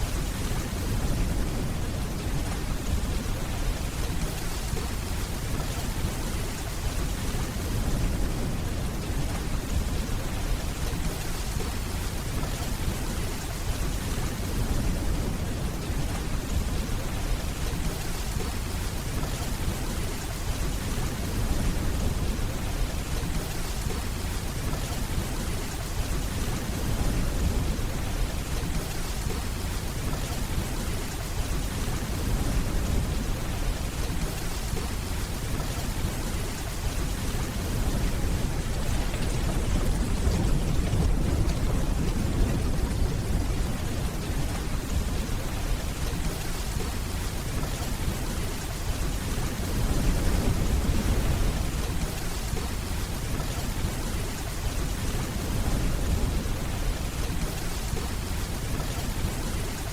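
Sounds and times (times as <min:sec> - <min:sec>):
steady rainfall hissing: 0:00.0 - 0:59.9
distant rolling thunder: 0:13.8 - 0:59.7.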